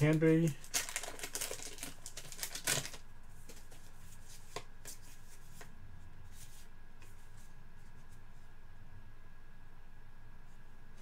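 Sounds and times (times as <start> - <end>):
trading cards clicking and rustling: 0.0 - 5.0.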